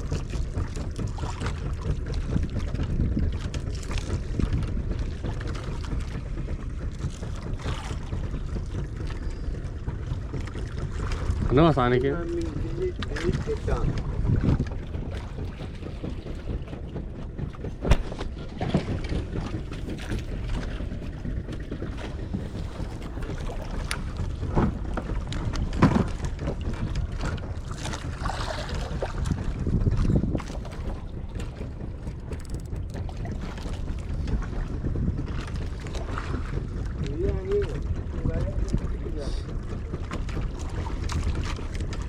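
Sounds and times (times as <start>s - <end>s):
wind rumbling on microphone: 0.0s - 42.0s
sharp knocks: 17.4s - 20.2s.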